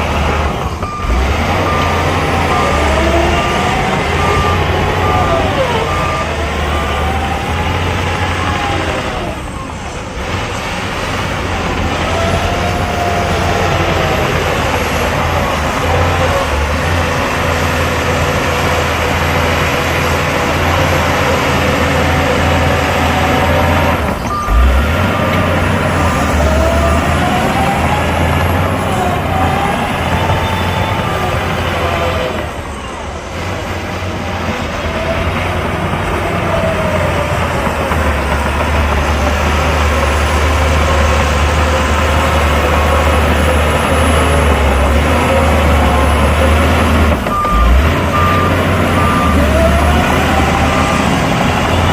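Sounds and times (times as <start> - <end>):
reversing alarm beeping: 0.0 - 10.2, 19.8 - 33.2, 41.5 - 51.9
diesel machinery engine revving: 0.0 - 51.9.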